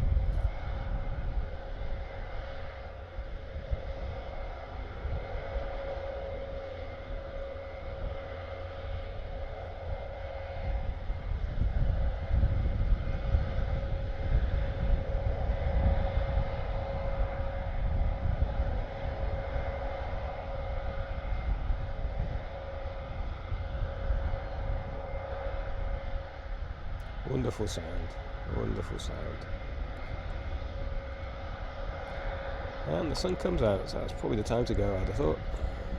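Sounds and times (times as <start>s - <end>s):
distant turboprop engines: 0.0s - 35.9s.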